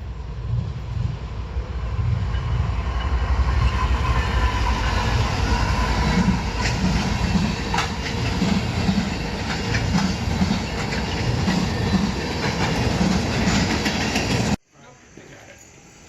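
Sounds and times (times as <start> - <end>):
train rumble: 0.0 - 14.6
train wheels clicking over rail joints: 2.2 - 14.6.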